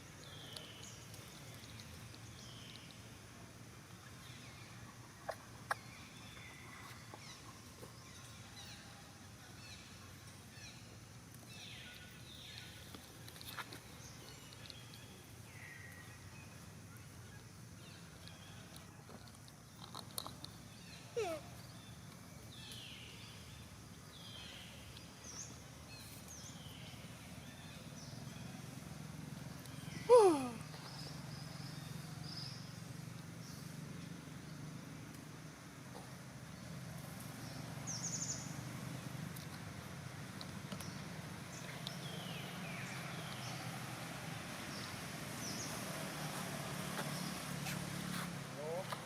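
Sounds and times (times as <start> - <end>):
bird calls and chirps: 0.0 - 3.1, 4.0 - 28.8.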